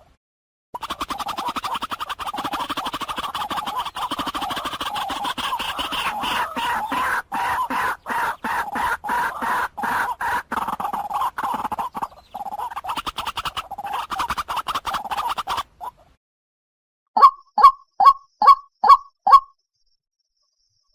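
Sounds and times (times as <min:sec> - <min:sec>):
waterhen calling: 0:00.8 - 0:16.1.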